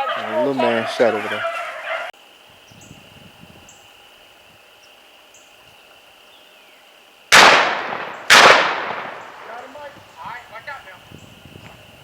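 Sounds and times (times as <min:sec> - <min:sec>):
shotgun blasts with echo: 0:07.3 - 0:09.7.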